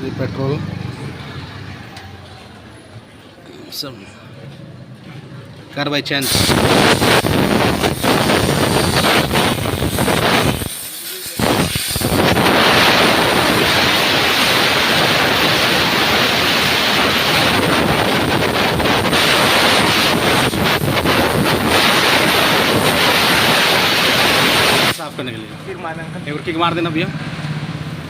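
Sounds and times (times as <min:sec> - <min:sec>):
pressure spray hissing: 0:06.2 - 0:25.3.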